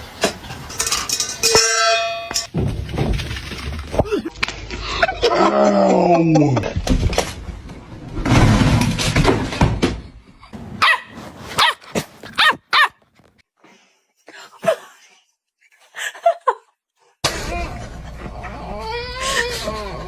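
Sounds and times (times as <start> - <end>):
dog barking: 10.8 - 13.0.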